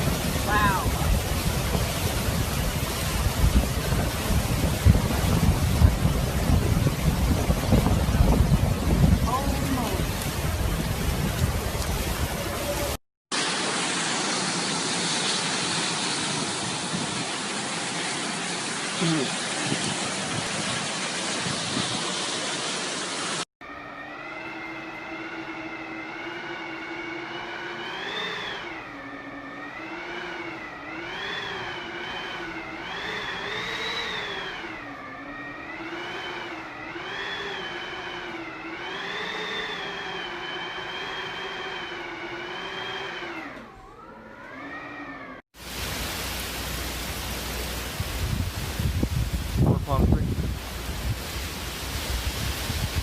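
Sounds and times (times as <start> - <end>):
storm wind howling through gap: 0.0 - 13.0, 23.7 - 45.4, 46.8 - 53.0
hurricane wind and rain: 0.0 - 23.4, 24.0 - 53.0.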